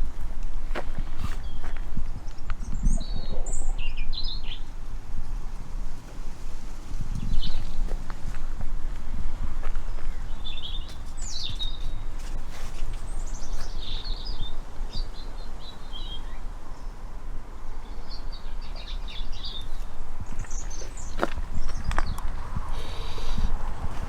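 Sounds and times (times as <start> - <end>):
steady low rumble: 0.0 - 12.5, 13.1 - 24.0
songbird twittering: 2.4 - 4.8, 9.9 - 17.0, 17.8 - 23.6.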